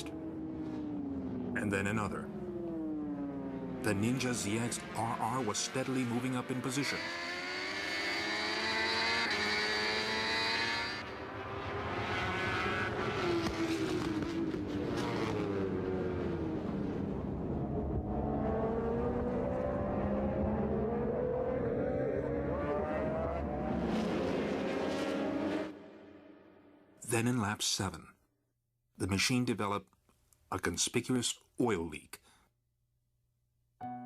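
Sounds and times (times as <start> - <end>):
race motorcycle engines revving: 0.0 - 26.1.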